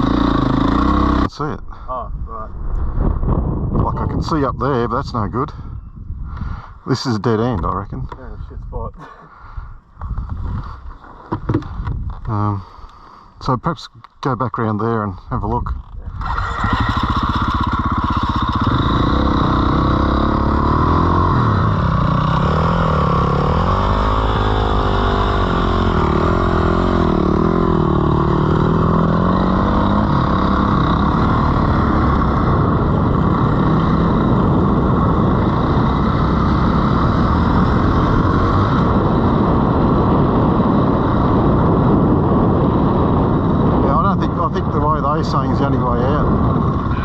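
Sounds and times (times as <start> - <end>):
dirt bike engine revving: 0.0 - 1.3, 16.1 - 43.8
constant low rumble: 0.0 - 47.0.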